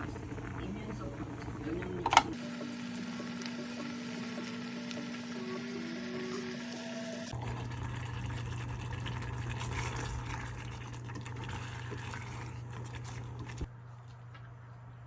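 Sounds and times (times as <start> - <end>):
water running from tap: 1.8 - 13.7.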